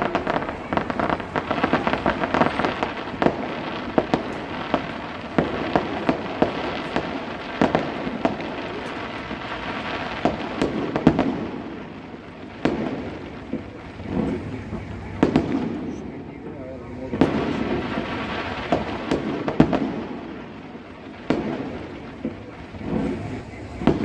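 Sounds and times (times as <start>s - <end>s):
firework crackling: 0.0s - 24.0s
sharp firework bangs: 0.0s - 24.0s
firework shell bursts: 21.2s - 24.0s.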